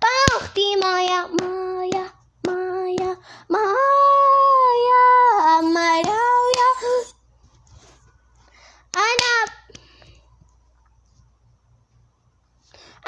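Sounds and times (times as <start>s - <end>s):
child singing: 0.0s - 7.2s.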